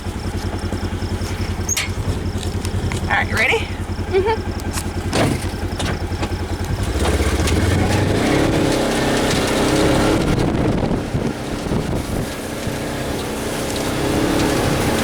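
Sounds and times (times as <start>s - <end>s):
vehicle engine driving off: 0.0s - 15.0s
wind on microphone: 6.7s - 12.8s.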